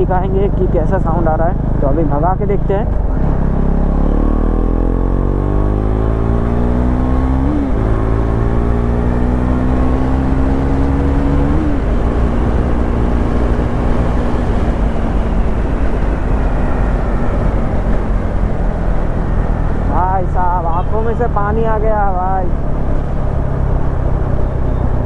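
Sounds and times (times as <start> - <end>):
motorcycle engine accelerating: 0.0 - 25.0
wind rush on microphone: 7.0 - 20.0.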